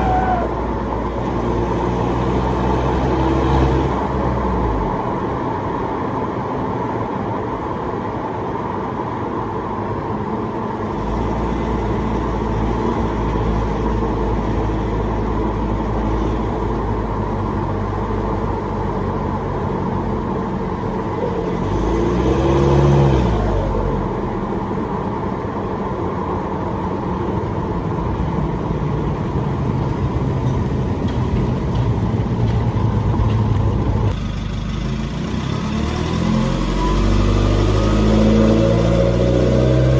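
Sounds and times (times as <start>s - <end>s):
diesel engine droning: 0.0s - 8.0s, 8.9s - 39.9s.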